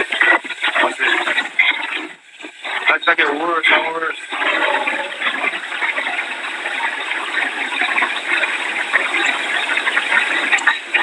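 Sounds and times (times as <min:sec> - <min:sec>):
heavy rain pouring: 0:02.6 - 0:11.0.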